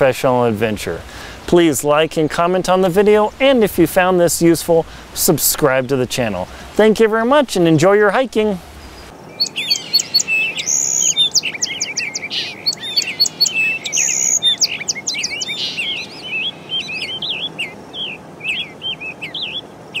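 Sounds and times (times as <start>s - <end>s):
birds chirping and singing: 8.4s - 20.0s.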